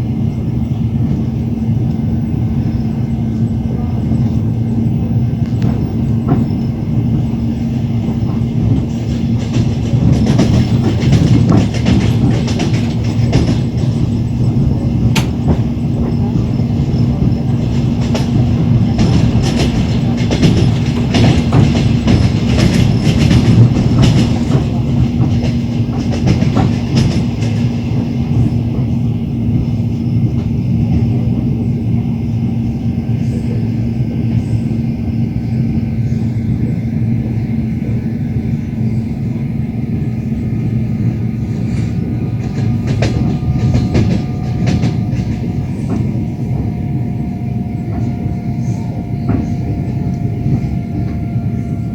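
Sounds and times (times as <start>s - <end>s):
train running rumble: 0.0s - 51.9s
train wheels clattering over joints: 2.6s - 51.9s.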